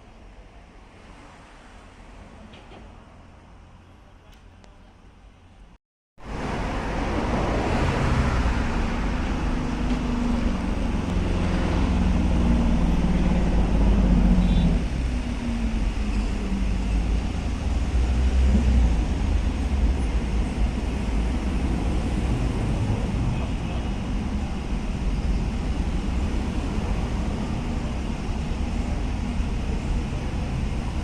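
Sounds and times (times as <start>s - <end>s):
road noise: 0.0s - 31.0s
vehicle engine rumble: 2.3s - 31.0s.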